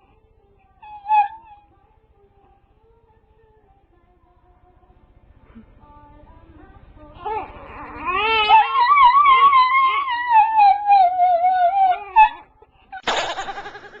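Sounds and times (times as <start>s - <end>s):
dog howling: 0.8s - 1.8s, 7.2s - 13.0s.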